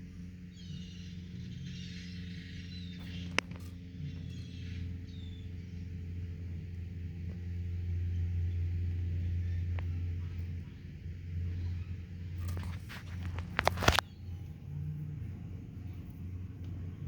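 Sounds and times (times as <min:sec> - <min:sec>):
engine idling: 0:00.0 - 0:17.0
faint clicks: 0:02.9 - 0:04.4.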